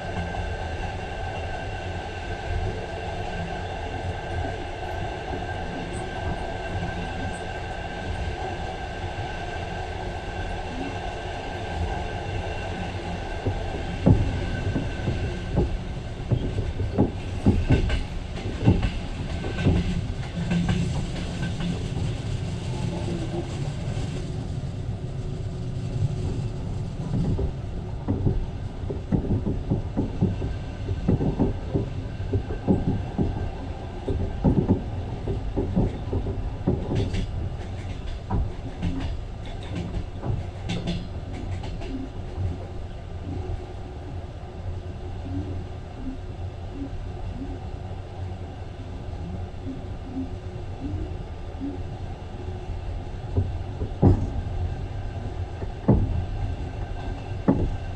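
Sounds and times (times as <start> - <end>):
train rumble: 0.0 - 57.9
wheels clacking over rails: 11.4 - 24.2, 26.0 - 43.5.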